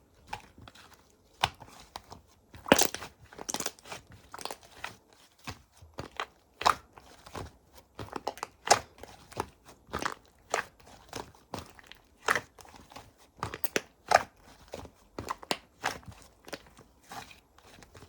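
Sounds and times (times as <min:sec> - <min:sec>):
slime squeezed with popping crackles: 0:02.7 - 0:03.8, 0:13.4 - 0:14.3.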